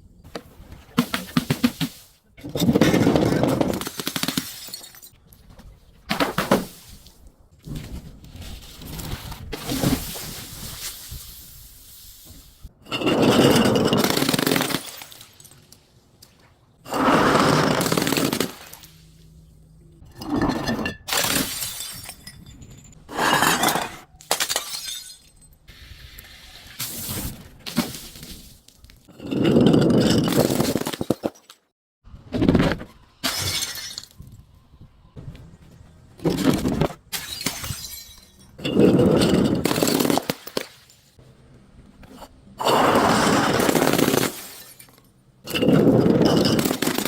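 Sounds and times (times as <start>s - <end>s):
glass crushing and breaking: 2.5s - 5.2s, 12.9s - 15.8s, 20.1s - 25.7s, 27.7s - 31.6s, 33.2s - 34.4s, 36.3s - 41.2s, 43.2s - 47.0s.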